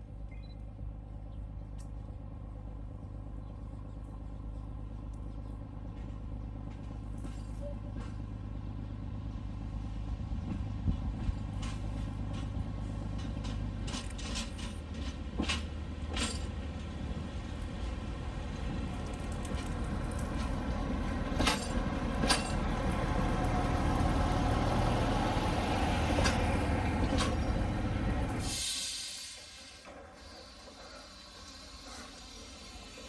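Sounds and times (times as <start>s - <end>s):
diesel engine humming: 15.7s - 29.8s.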